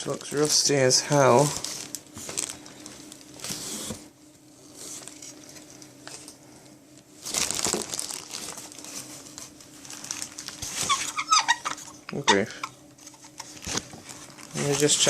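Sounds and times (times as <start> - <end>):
packaging crinkling: 0.0 - 4.0, 7.2 - 12.0, 13.0 - 15.0.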